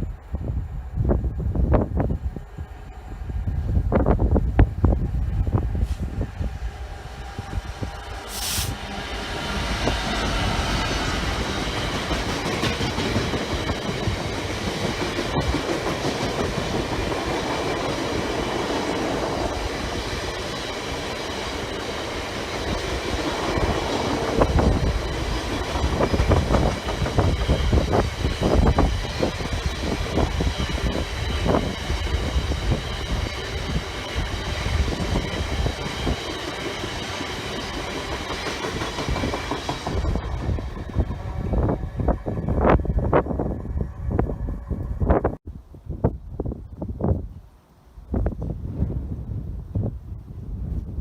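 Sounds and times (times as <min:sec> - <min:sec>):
train rumbling past: 0:00.0 - 0:45.4
wheels clacking over rail joints: 0:09.2 - 0:19.0, 0:35.4 - 0:42.4.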